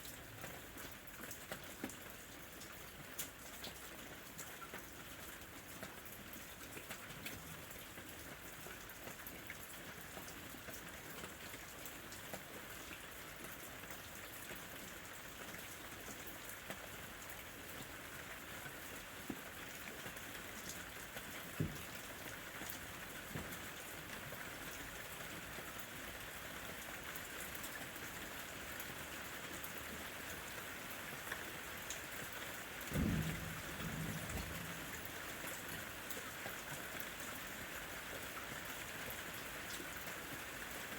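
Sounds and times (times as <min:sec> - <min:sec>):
rain falling on leaves: 0:00.0 - 0:40.9
low knock: 0:32.9 - 0:35.0
distant thunder rumble: 0:32.9 - 0:35.5.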